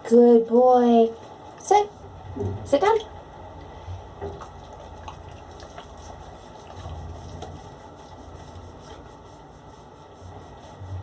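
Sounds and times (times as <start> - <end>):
bathtub tap running: 2.0 - 8.7.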